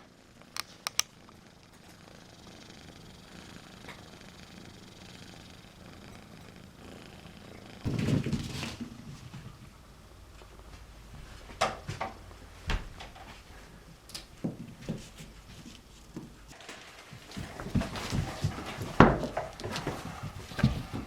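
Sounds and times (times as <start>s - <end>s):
muffled thump and rustle: 7.9s - 9.6s, 17.3s - 21.0s.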